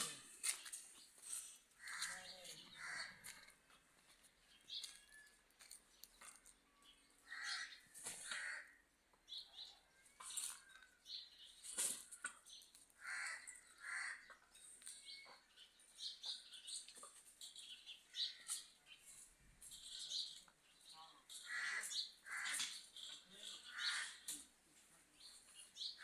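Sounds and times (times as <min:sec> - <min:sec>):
harsh bird calls: 0:00.1 - 0:03.4, 0:07.2 - 0:08.8, 0:13.0 - 0:14.5, 0:19.7 - 0:24.5.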